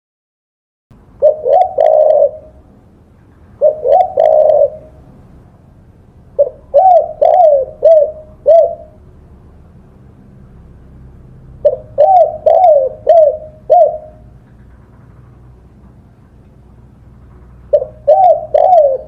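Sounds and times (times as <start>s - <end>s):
dove cooing: 1.2s - 2.7s, 3.6s - 5.1s, 6.4s - 9.0s, 11.6s - 14.4s, 17.6s - 19.0s.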